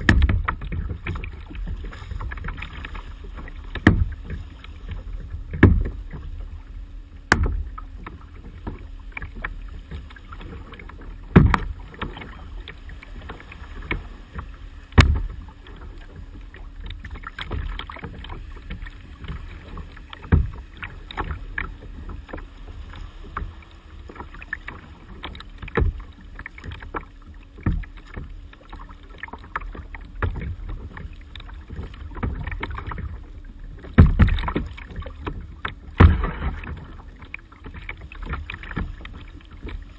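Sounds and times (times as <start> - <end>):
low steady rumble: 0.0 - 39.9
paddle splashing in water: 0.0 - 39.9
sharp knocks: 3.8 - 4.2, 5.5 - 6.0, 11.3 - 11.7, 15.0 - 15.4.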